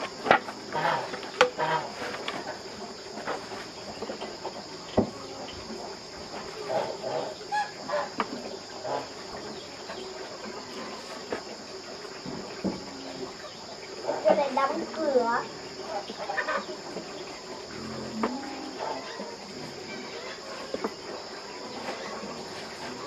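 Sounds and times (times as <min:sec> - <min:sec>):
chickens clucking: 0:00.0 - 0:23.0
high-pitched insect drone: 0:17.2 - 0:21.8.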